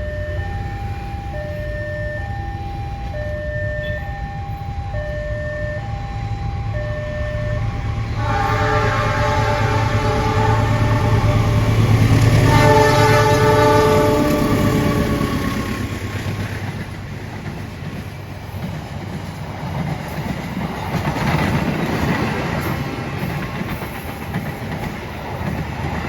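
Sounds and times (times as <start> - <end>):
two-tone level crossing alarm: 0.0 - 15.8
train rumble: 0.0 - 26.0
train horn: 3.1 - 15.9.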